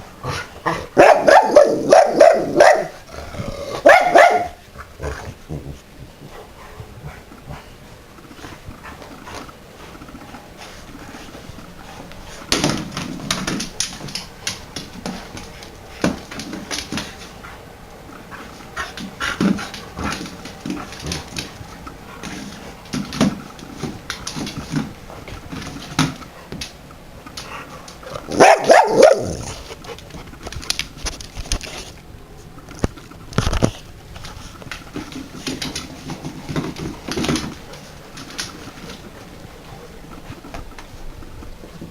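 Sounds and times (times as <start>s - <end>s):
dogs moving with clicks and knocks: 6.2s - 41.9s
dog vocalising: 28.0s - 29.9s.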